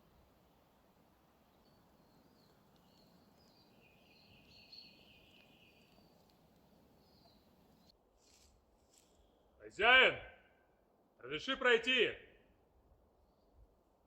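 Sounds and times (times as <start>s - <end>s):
low steady background hiss: 0.0s - 14.0s
faint high bird chirping: 1.4s - 8.4s.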